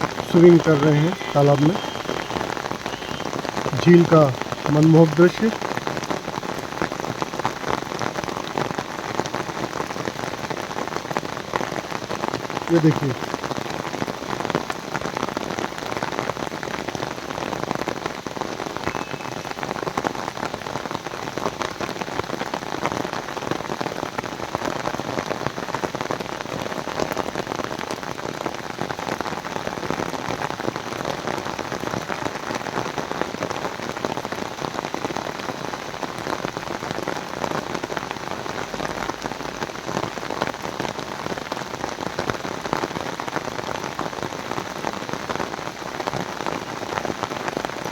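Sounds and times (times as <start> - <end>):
heavy rain falling: 0.0 - 47.9.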